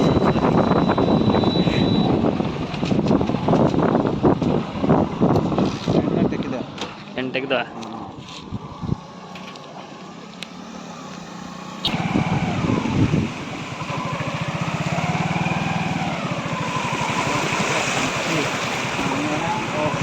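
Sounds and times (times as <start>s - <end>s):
small motor engine running: 8.4s - 20.0s.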